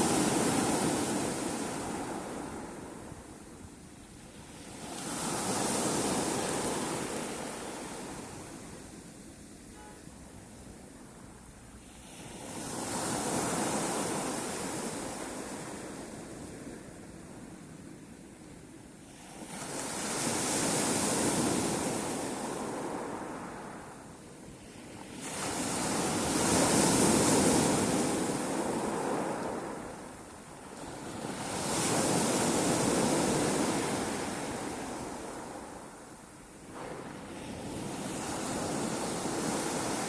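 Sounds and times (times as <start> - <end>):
sea waves breaking: 0.0 - 9.6, 24.6 - 40.0.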